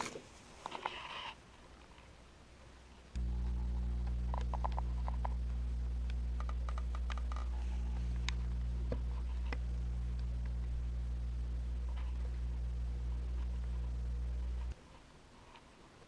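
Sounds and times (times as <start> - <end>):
low electrical hum: 0.0 - 16.0
small parts clicking: 6.4 - 7.6.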